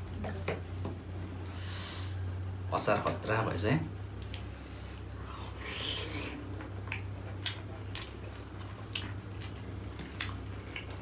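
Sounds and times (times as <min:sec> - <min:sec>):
steady low hum: 0:00.0 - 0:11.0
people chewing wetly: 0:04.2 - 0:11.0.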